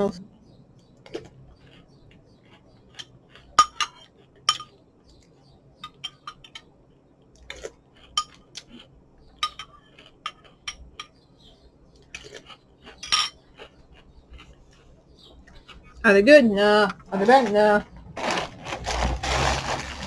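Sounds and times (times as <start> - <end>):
spoon clinking in bowl: 3.6 - 4.7, 9.4 - 11.1, 13.0 - 13.4.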